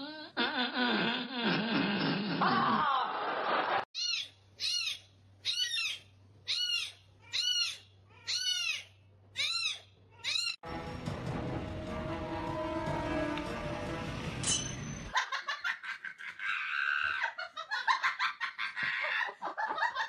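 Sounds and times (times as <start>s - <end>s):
high-pitched animal call: 4.0s - 10.6s.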